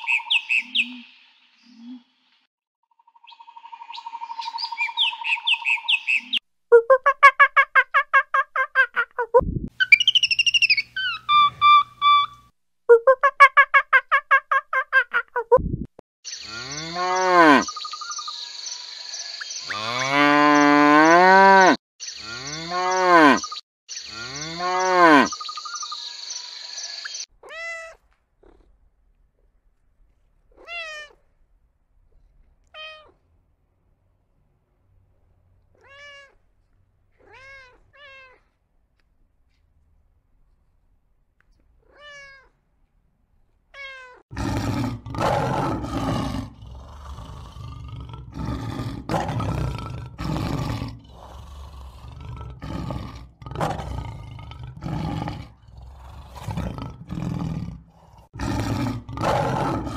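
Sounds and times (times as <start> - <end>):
cow mooing: 16.5 - 17.7, 19.7 - 23.5, 24.2 - 25.4
cat meowing: 27.4 - 28.0, 30.5 - 31.2, 32.7 - 33.2, 35.8 - 36.4, 37.2 - 38.5, 41.8 - 42.6, 43.7 - 44.2
lion roaring: 44.3 - 59.9.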